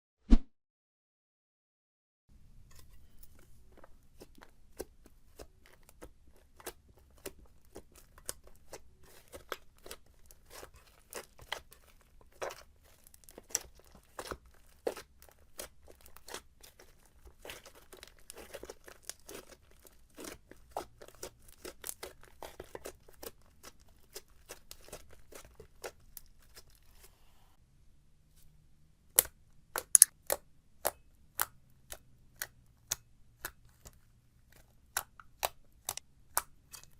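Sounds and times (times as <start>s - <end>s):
slime crackling and popping: 4.1s - 26.9s, 29.1s - 36.9s
slime snapping: 29.1s - 34.0s, 34.9s - 36.8s.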